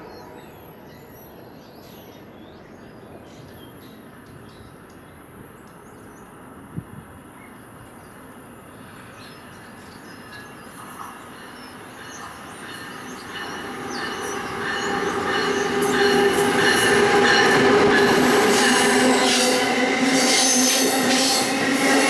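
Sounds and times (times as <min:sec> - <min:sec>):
train wheels rumbling: 0:08.9 - 0:22.0.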